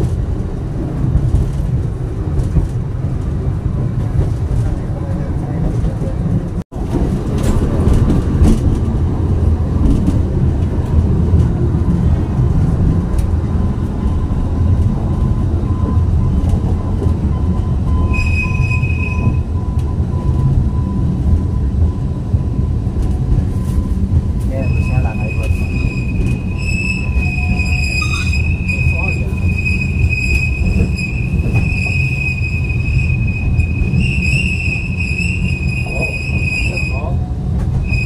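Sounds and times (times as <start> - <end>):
train rumbling: 0.0 - 38.0
high metallic squeal: 17.4 - 19.8, 24.5 - 37.2.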